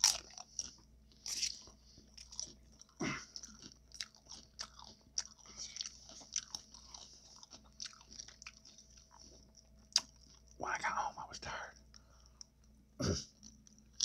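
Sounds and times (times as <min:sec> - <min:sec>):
close chewing with crunches: 0:00.0 - 0:10.6, 0:11.7 - 0:14.0.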